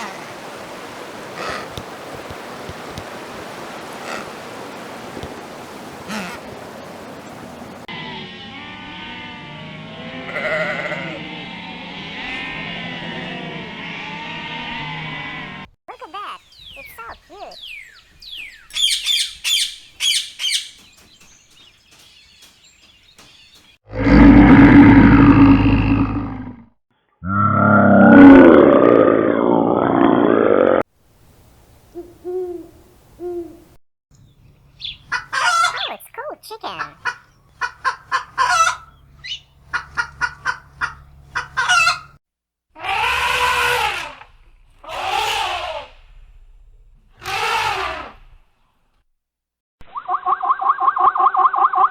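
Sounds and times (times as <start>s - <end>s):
low rough animal call: 0.0s - 2.0s, 3.8s - 4.7s, 7.9s - 15.7s, 23.9s - 30.8s, 42.8s - 46.5s
small bird chirping: 16.1s - 23.8s, 34.1s - 37.6s, 38.8s - 39.6s
chicken clucking: 34.8s - 36.1s, 36.7s - 42.1s.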